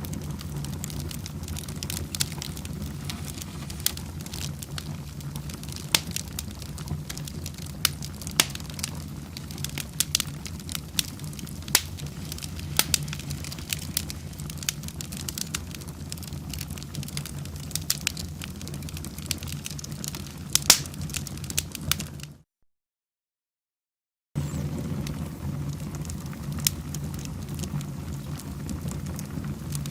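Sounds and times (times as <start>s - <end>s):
low rush of flames: 0.0s - 22.3s, 24.4s - 29.9s
wood fire crackling and popping: 0.0s - 22.4s, 24.4s - 29.9s.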